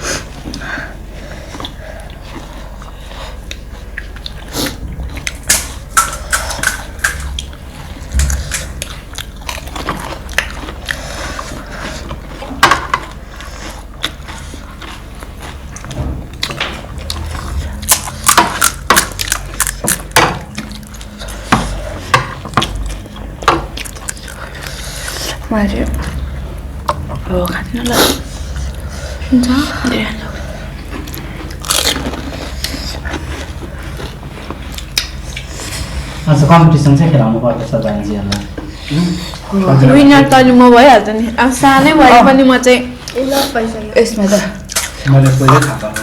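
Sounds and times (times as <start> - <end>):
chewing: 0.3 - 36.2, 37.6 - 39.6
crunching crisp food: 31.0 - 35.4.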